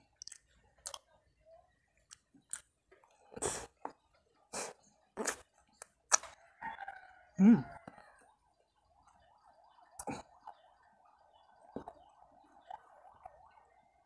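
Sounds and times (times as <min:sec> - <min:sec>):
person chewing: 0:00.0 - 0:01.1, 0:02.1 - 0:04.0, 0:04.6 - 0:06.4.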